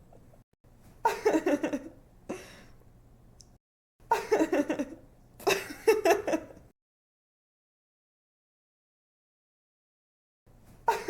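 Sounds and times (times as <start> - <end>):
woman giggling: 1.0 - 2.6, 4.1 - 6.6.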